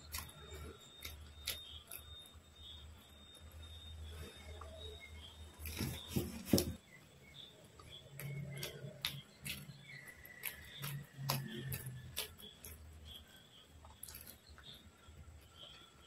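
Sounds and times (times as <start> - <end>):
wet mouth chewing clicks: 7.8 - 14.8.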